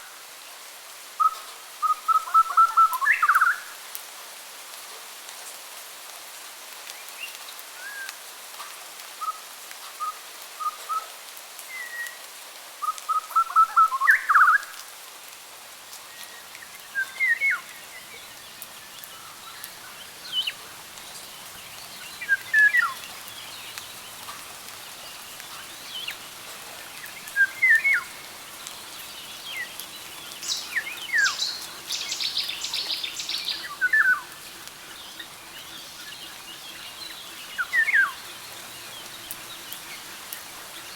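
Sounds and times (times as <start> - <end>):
steady background hiss: 0.0 - 40.9
songbirds singing and chirping: 16.1 - 40.9.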